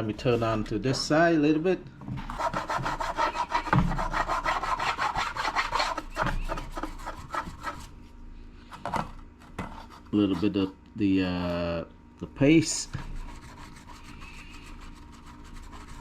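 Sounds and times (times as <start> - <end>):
toothbrush scrubbing a surface: 2.3 - 7.9, 12.8 - 16.0.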